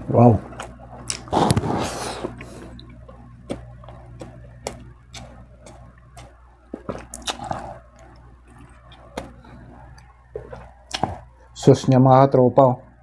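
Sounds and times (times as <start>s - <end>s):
person chewing with lip smacks: 2.2s - 11.3s.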